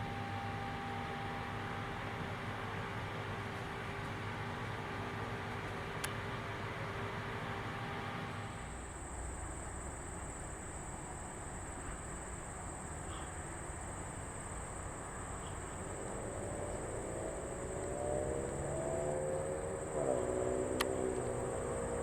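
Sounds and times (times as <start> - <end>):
low outdoor rumble: 0.0 - 8.7, 13.1 - 22.0
motor rising in pitch: 16.0 - 22.0.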